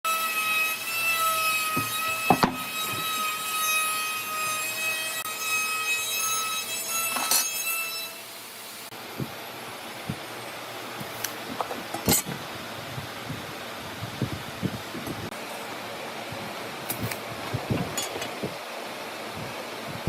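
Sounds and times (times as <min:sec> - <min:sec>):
power tool whining: 0:00.1 - 0:07.6
wood being cut: 0:00.1 - 0:08.4
sharp knocks: 0:01.8 - 0:03.0.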